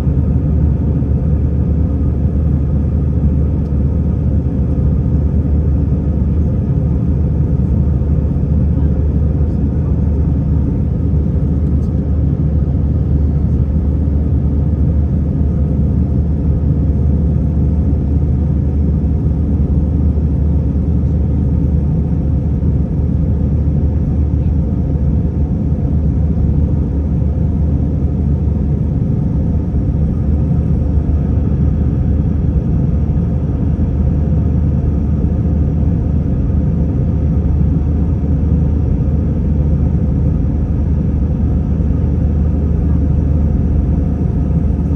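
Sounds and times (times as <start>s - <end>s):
airliner engines rumbling: 0.0s - 44.9s.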